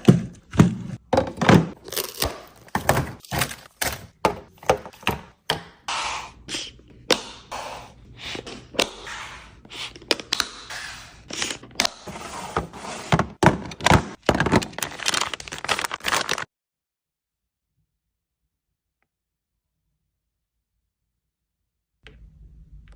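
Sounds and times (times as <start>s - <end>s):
plastic wrappers crinkling: 13.4s - 16.5s.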